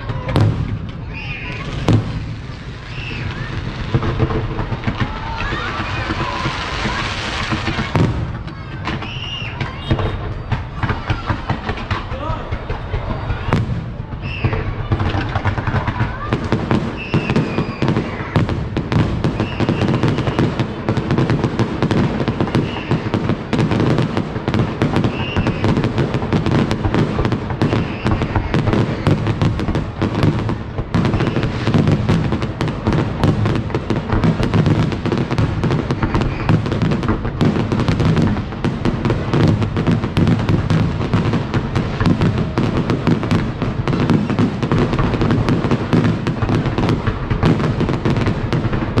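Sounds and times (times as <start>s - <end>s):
fireworks bangs and crackles: 0.0s - 49.0s.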